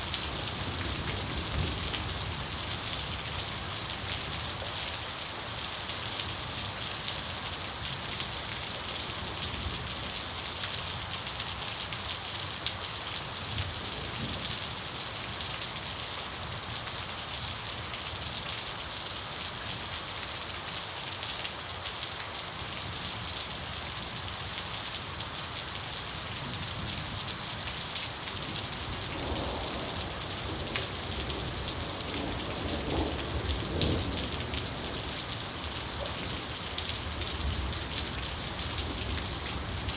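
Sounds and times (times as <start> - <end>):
steady rain falling: 0.0 - 39.9
thunder rumbling: 28.7 - 39.9.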